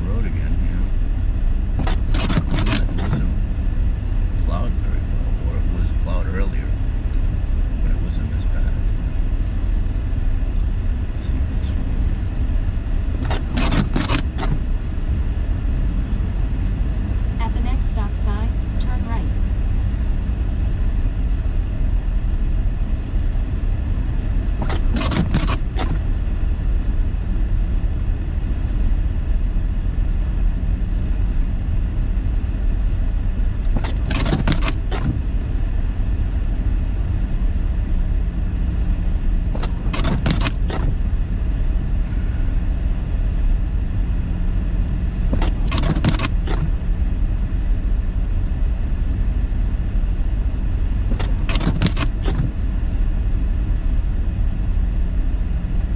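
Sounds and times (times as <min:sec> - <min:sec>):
car cabin rumble: 0:00.0 - 0:55.9
sharp clicks or knocks: 0:24.6 - 0:26.0, 0:33.7 - 0:35.2, 0:39.6 - 0:41.0, 0:45.3 - 0:46.7, 0:51.1 - 0:52.5.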